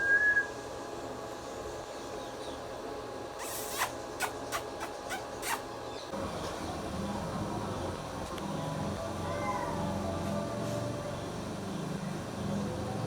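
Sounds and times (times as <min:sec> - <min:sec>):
low steady hum: 0:04.0 - 0:13.0.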